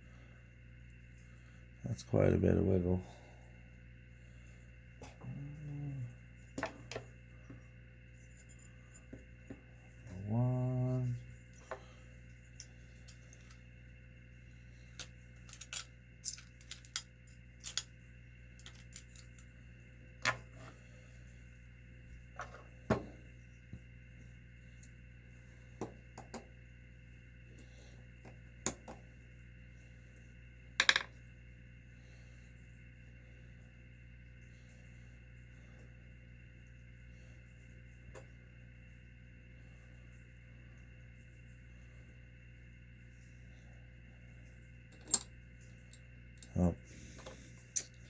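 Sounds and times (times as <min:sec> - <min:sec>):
small metal parts clinking: 0:15.0 - 0:17.9, 0:18.6 - 0:19.5, 0:44.9 - 0:46.6, 0:47.2 - 0:48.0.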